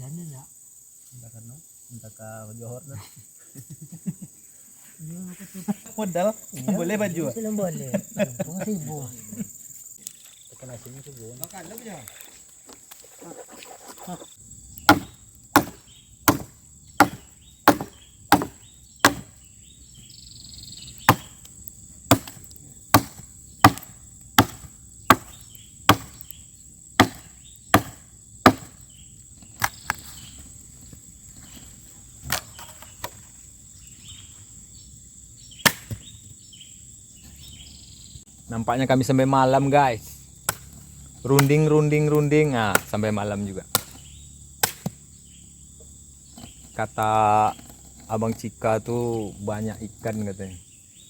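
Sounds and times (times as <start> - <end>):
high insect drone: 0.0 - 51.0
blade chopping wood: 14.8 - 19.4, 21.0 - 26.4, 27.0 - 28.8, 35.6 - 36.1, 40.4 - 43.1, 43.7 - 45.1.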